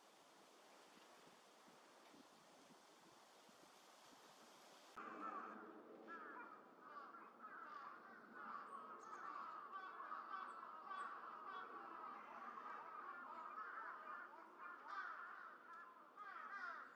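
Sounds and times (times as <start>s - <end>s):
flock of birds chattering: 4.8s - 16.9s.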